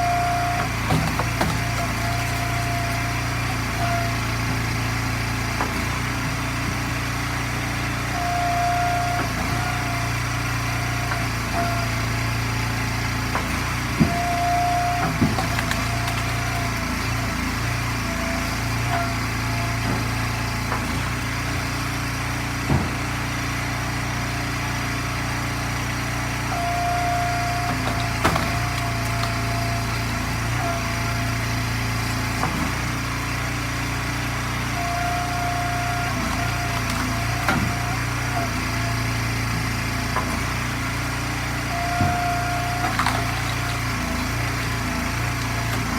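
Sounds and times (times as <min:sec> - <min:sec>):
log splitter engine running: 0:00.0 - 0:45.9
wood splitting knocks: 0:00.5 - 0:04.6, 0:13.2 - 0:19.2, 0:22.6 - 0:23.2, 0:27.7 - 0:33.0, 0:36.2 - 0:38.7, 0:41.9 - 0:45.9.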